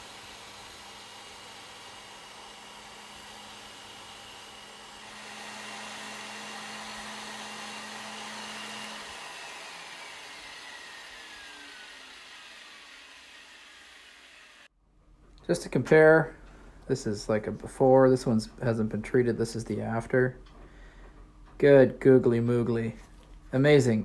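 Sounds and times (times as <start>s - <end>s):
sander motor whirring: 0.0s - 14.7s.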